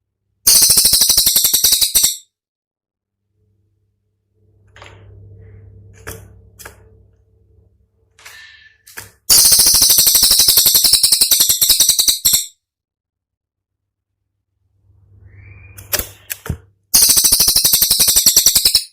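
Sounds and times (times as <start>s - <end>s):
songbird rattling call: 0.5s - 2.2s, 9.3s - 12.5s, 17.0s - 18.9s
low hum: 3.1s - 8.6s.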